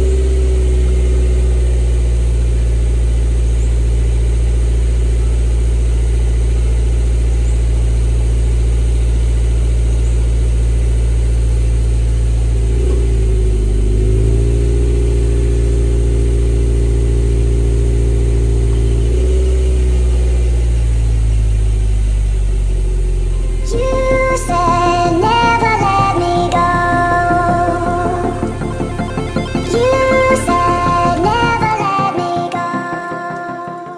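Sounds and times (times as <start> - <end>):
car engine idling and revving: 0.0 - 33.4
music: 23.4 - 33.9.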